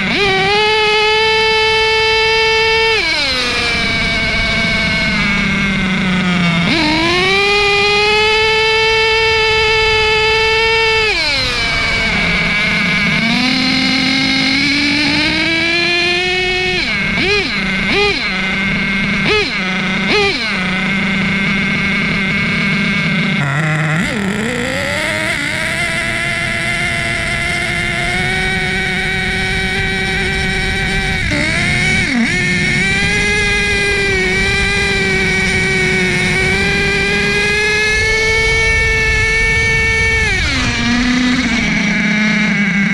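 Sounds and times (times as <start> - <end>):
small engine high whine: 0.0 - 42.9.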